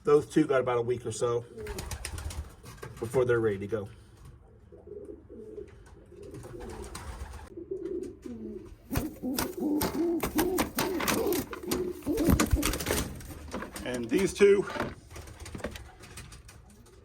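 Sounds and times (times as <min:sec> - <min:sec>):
pigeons cooing: 0:04.4 - 0:17.0
clicks and scuffs in nest boxes: 0:08.8 - 0:16.6.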